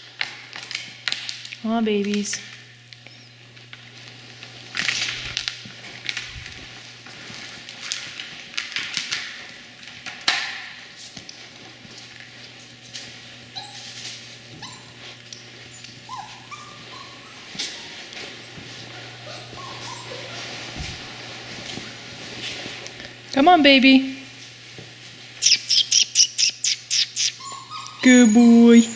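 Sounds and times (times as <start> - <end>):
puppies whining and yipping: 13.5 - 21.2, 25.4 - 28.9.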